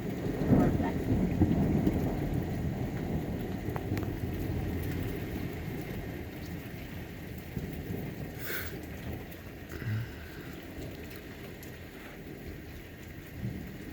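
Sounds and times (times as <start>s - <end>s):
thunder rumbling: 0.0s - 12.6s
heavy rain: 0.0s - 13.9s.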